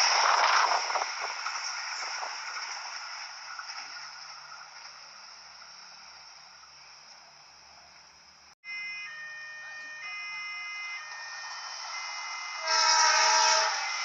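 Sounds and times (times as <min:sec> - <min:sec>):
train wheels on rails: 0:00.0 - 0:08.2, 0:11.0 - 0:14.0.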